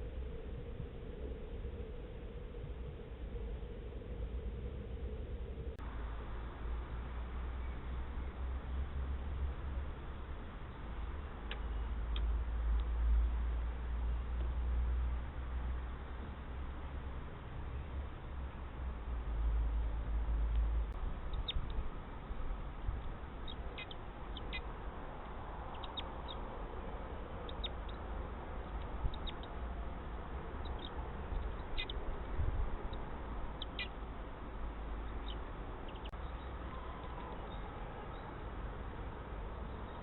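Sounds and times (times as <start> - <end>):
steady low rumble: 0.0 - 40.0
small birds chirping: 21.2 - 38.4, 39.0 - 40.0.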